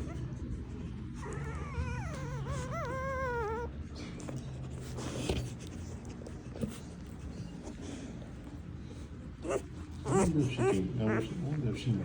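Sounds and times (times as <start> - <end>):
dog whining: 0.0 - 0.4, 1.1 - 4.0, 9.4 - 11.4
steady low hum: 0.0 - 12.0.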